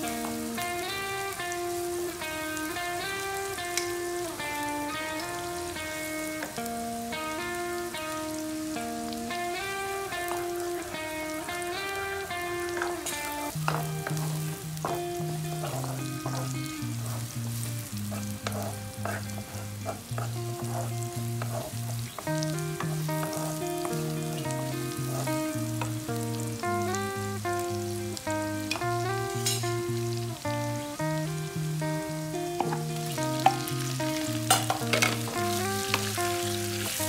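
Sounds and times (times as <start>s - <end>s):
background music with plucked melody: 0.0s - 37.0s
food sizzling in oil: 0.0s - 37.0s
wooden spatula scraping pan: 15.6s - 17.3s, 18.1s - 22.0s.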